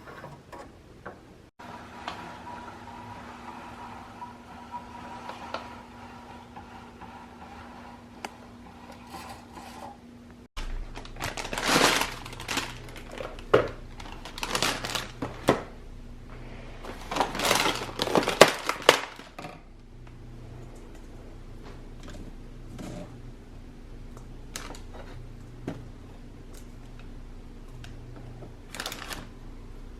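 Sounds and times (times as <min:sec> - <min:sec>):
household items rustling and clattering: 0:10.6 - 0:15.8, 0:16.4 - 0:19.7, 0:28.2 - 0:29.3.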